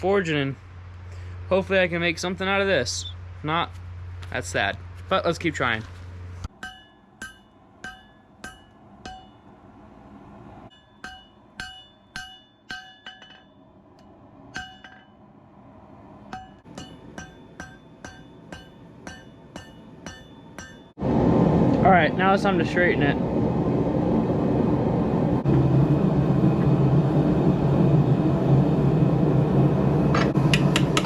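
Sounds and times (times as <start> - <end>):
hammer striking steel on anvil: 6.5 - 9.6, 10.7 - 15.3, 16.2 - 21.0, 30.1 - 31.0.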